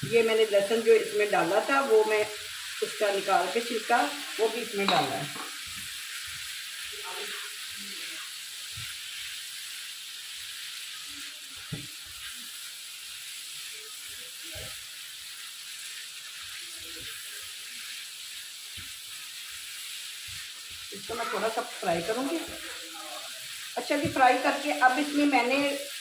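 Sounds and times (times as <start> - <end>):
liver sizzling in a pan: 0.0 - 26.0
spatula knocking and scraping pan: 4.7 - 5.9, 23.8 - 24.6.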